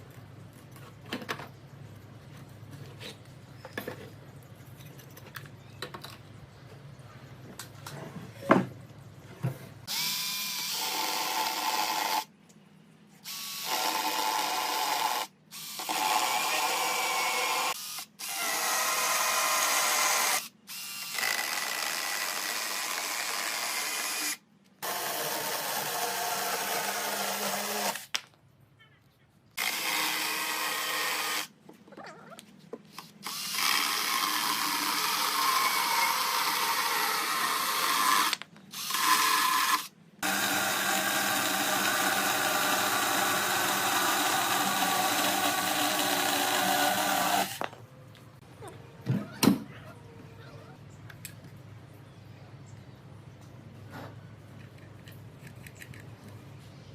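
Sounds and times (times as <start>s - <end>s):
electric drill running: 9.9s - 12.3s, 13.2s - 28.0s, 29.6s - 31.5s, 33.2s - 47.7s.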